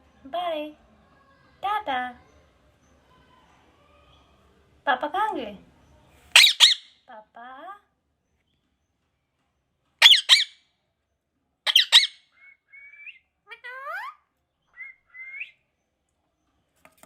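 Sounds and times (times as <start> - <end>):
parrot squawking: 6.3 - 7.0, 10.0 - 10.6, 11.7 - 14.2
parrot whistles and chirps: 6.4 - 6.9, 10.0 - 10.6, 11.7 - 13.2, 14.8 - 15.6.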